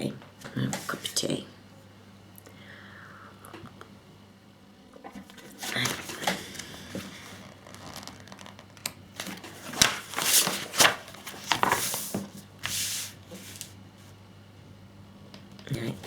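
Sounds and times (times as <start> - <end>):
packaging crinkling and rustling: 5.3 - 13.8.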